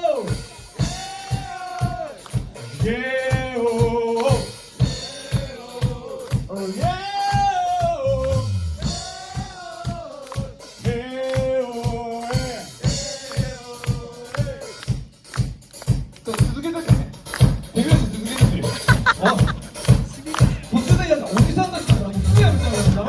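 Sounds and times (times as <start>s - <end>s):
drum kit beat: 0.0s - 23.0s
live rock band playing: 15.3s - 23.0s.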